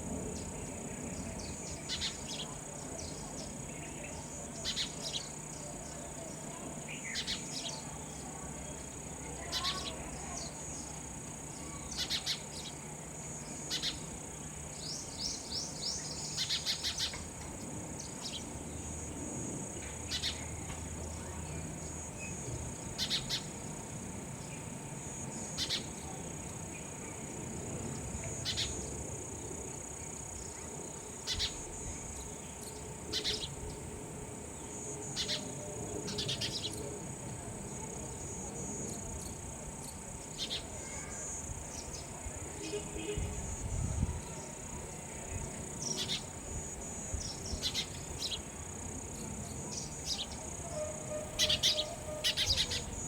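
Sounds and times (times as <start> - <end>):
sparrow chirping: 0.4 - 6.0, 11.9 - 12.8, 13.4 - 14.1, 14.7 - 17.3, 21.8 - 23.7, 24.6 - 26.0, 28.3 - 28.9, 31.3 - 33.9, 34.6 - 35.5, 36.1 - 36.8, 45.8 - 46.3, 47.2 - 48.4, 49.6 - 53.0
high-pitched insect drone: 48.6 - 53.0.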